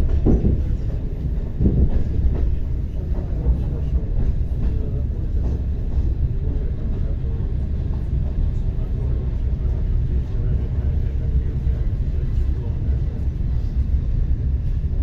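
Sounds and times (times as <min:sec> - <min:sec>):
wheels knocking on rails: 0:00.0 - 0:06.1
train low rumble: 0:00.0 - 0:15.0.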